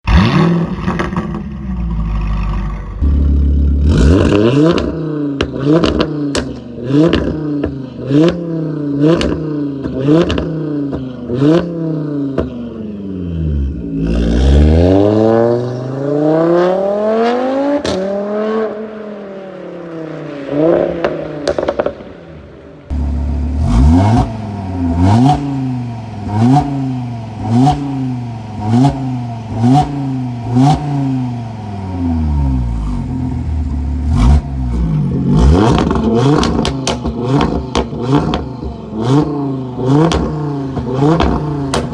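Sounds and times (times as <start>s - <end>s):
exhaust crackles and pops: 0.0s - 3.4s, 35.4s - 41.9s
car engine revving: 0.0s - 18.9s, 22.8s - 41.9s.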